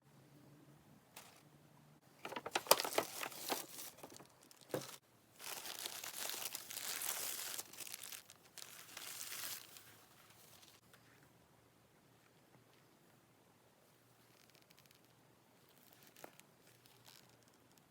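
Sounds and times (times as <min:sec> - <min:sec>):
packaging crinkling: 0:02.2 - 0:10.8.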